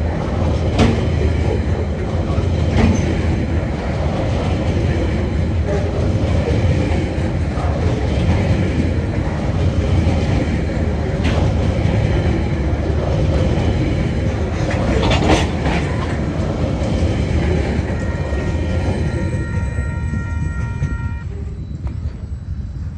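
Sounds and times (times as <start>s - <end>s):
freight wagons rumbling on rails: 0.0s - 22.9s
steady high ringing: 17.0s - 22.9s.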